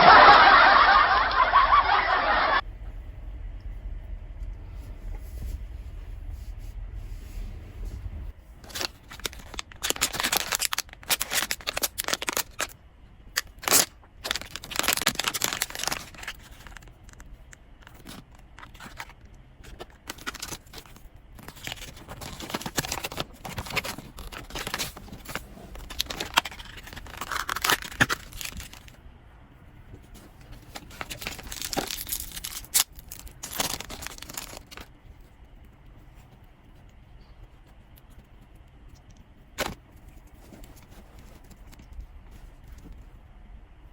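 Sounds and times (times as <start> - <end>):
packaging torn and crinkled: 8.6 - 12.8, 13.4 - 29.0, 30.6 - 34.9.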